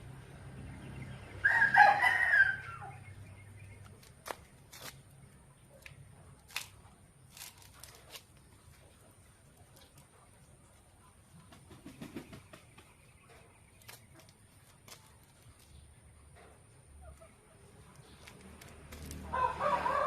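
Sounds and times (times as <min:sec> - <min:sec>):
rooster crowing: 0:01.4 - 0:03.0, 0:19.3 - 0:20.0.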